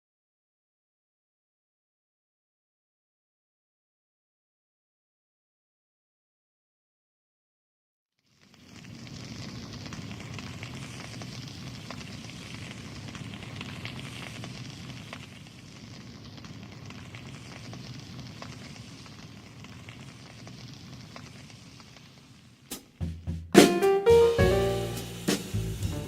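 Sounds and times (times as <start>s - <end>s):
fire flames rushing: 8.2s - 22.9s
fire crackling: 8.2s - 26.0s.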